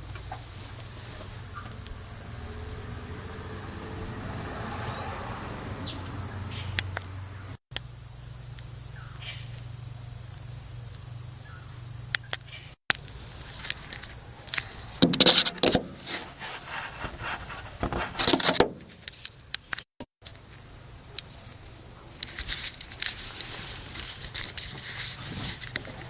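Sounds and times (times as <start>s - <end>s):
car engine idling: 0.0s - 7.6s
scraping and rustling: 13.1s - 19.4s, 22.3s - 26.0s.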